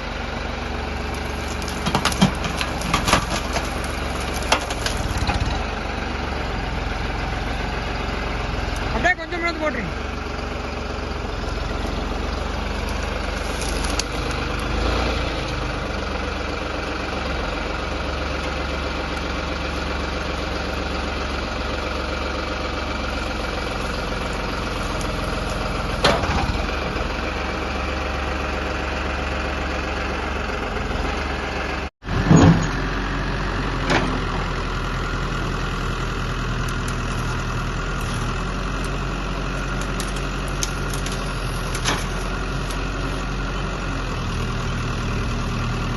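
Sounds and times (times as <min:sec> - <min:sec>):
diesel engine idling: 0:00.0 - 0:45.9
knocks and clatters: 0:01.4 - 0:05.6.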